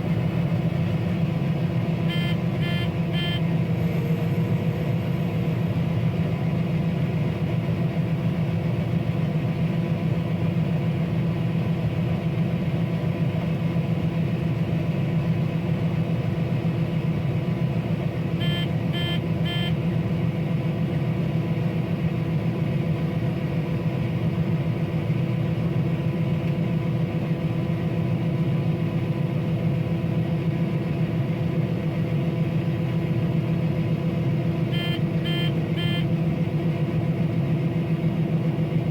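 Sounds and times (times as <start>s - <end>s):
combine engine and machinery drone: 0.0s - 38.9s
short high beeps: 2.1s - 3.4s, 18.4s - 19.7s, 34.7s - 36.1s.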